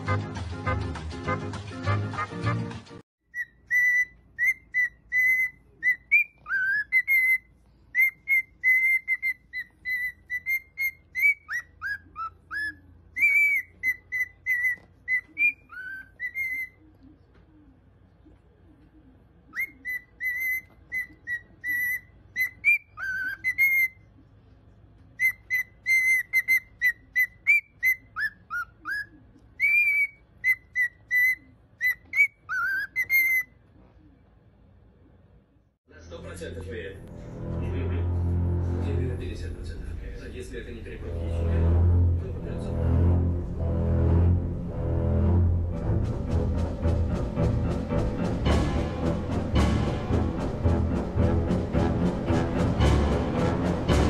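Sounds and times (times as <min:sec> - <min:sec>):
cockatiel whistling: 0:03.3 - 0:16.8, 0:19.5 - 0:24.0, 0:25.2 - 0:33.6.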